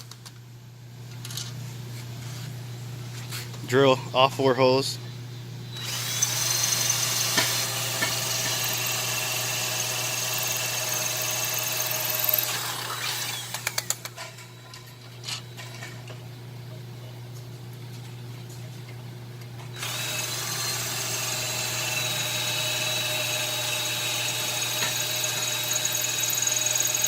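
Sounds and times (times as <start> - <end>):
power drill boring: 5.7 - 14.1, 19.7 - 27.0.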